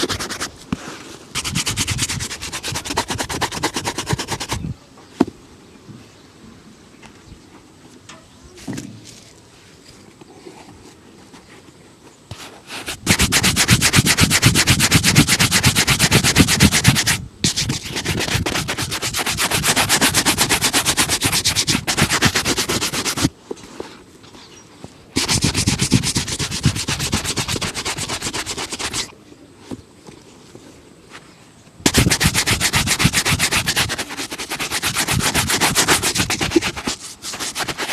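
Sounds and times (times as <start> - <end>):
buffing strokes on a shoe: 0.0 - 4.7, 12.3 - 23.3, 25.2 - 29.1, 31.9 - 37.9.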